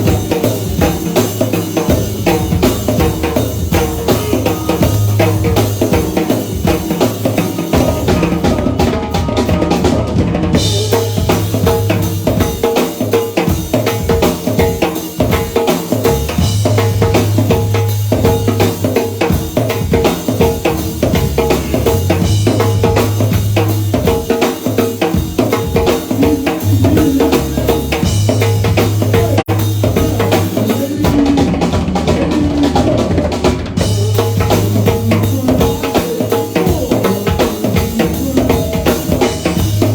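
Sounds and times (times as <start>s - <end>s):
drum kit: 0.0s - 39.9s
live band playing: 0.0s - 39.9s
low bass notes: 20.7s - 23.9s, 26.3s - 30.4s.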